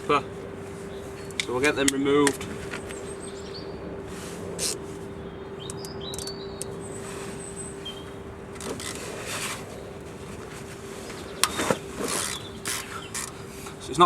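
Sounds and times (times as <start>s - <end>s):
birds chirping: 0.0s - 14.0s
steady low hum: 0.0s - 14.0s
sharp clicks: 5.6s - 6.8s
scraping or rubbing: 8.6s - 13.7s.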